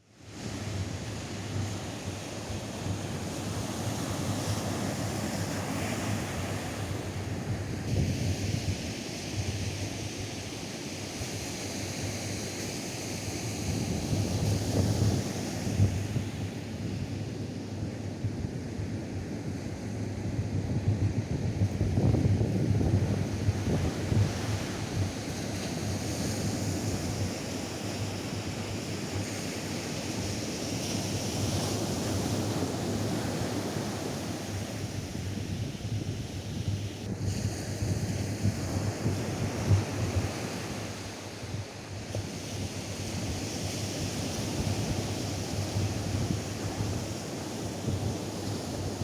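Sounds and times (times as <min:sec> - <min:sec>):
wind buffeting microphone: 0:19.5 - 0:29.8
surf washing onto beach: 0:21.8 - 0:49.0.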